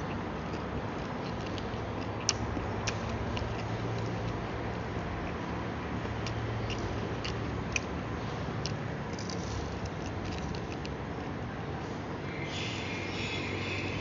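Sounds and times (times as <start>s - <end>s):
crisp wet chewing clicks: 0.0s - 5.4s, 6.0s - 11.3s
steady low hum: 0.0s - 14.0s.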